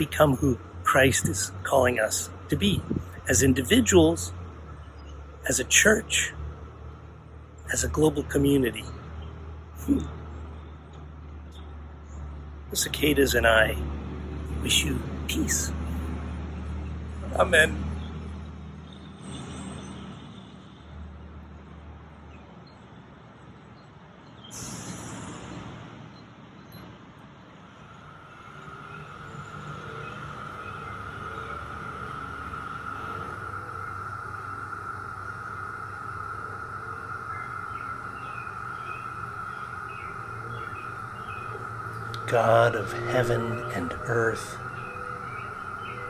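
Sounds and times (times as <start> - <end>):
cicadas droning: 0.0 - 46.0
low rumble of road traffic: 0.0 - 46.0
loud rush of high hiss: 24.5 - 26.1, 27.6 - 46.0
even hiss: 27.8 - 46.0.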